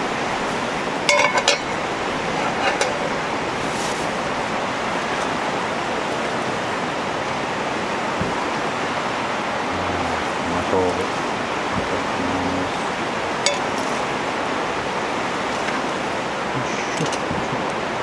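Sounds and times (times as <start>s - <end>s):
steady rushing noise: 0.0s - 18.0s
utensils clinking on cast iron: 1.1s - 1.7s.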